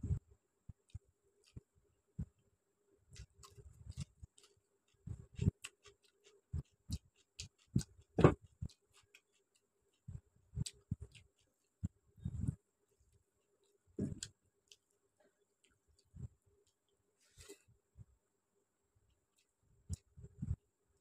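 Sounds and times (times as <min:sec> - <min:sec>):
chewing food: 0:00.7 - 0:01.7, 0:03.1 - 0:12.6, 0:13.4 - 0:17.0, 0:19.1 - 0:20.2.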